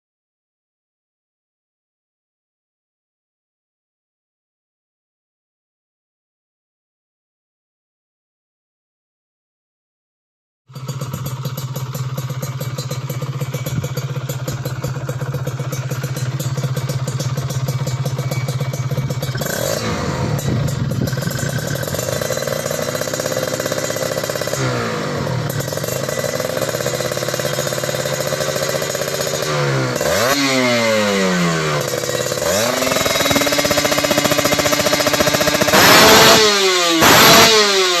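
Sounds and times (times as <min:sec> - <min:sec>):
motorcycle engine revving: 0:10.7 - 0:38.0.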